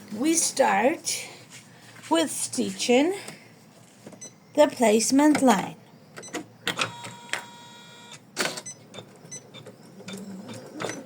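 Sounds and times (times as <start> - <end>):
embroidery machine motor whine: 6.8 - 8.2.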